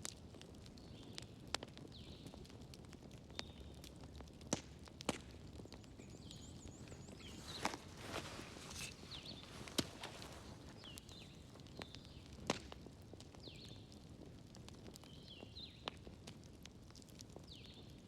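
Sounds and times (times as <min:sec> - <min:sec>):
wood fire crackling: 0:00.0 - 0:18.0
sharp pops of fire: 0:04.3 - 0:13.8.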